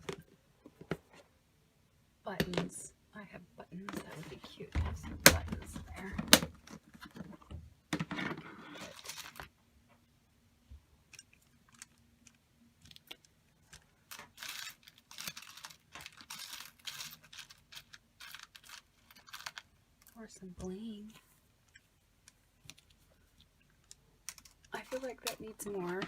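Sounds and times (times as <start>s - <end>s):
paper rustling: 8.4s - 9.5s, 12.9s - 19.7s.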